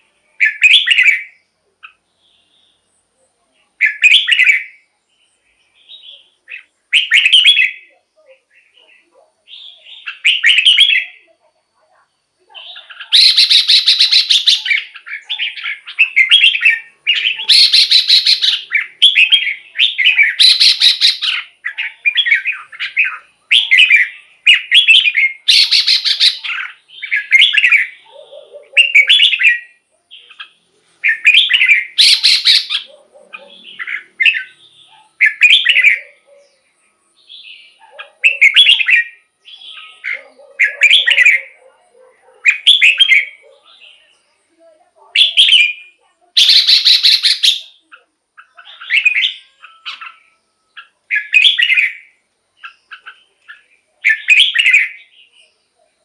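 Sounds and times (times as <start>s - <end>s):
bird singing whistled phrases: 0.4s - 1.4s, 3.8s - 4.8s, 5.8s - 7.9s, 9.5s - 11.2s, 12.6s - 28.0s, 31.0s - 32.9s, 38.2s - 41.6s, 45.2s - 55.4s.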